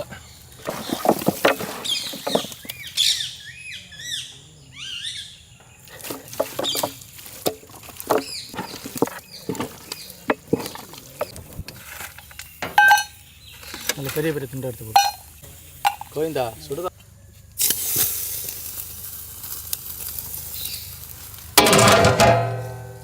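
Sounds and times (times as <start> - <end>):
small birds chirping: 0.0 - 17.8, 18.5 - 21.6
utensils knocking in cooking pan: 21.6 - 23.0.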